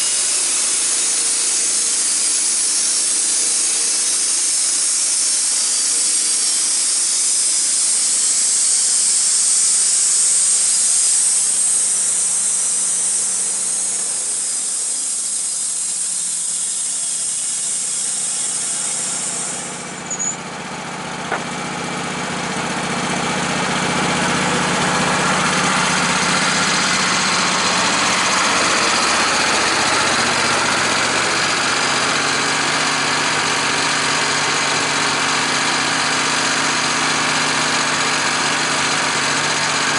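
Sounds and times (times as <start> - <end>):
high hiss: 0.0 - 20.6, 24.1 - 32.6
engine running: 0.0 - 39.9.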